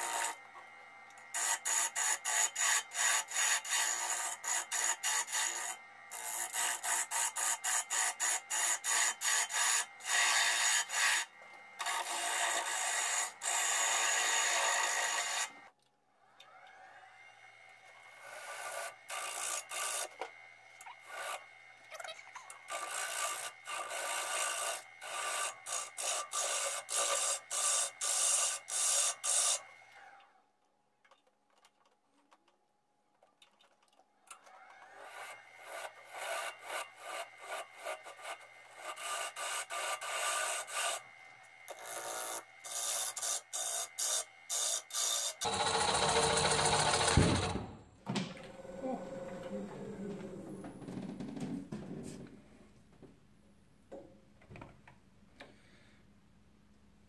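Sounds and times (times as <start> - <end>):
faint lathe whine: 48.1 - 51.3.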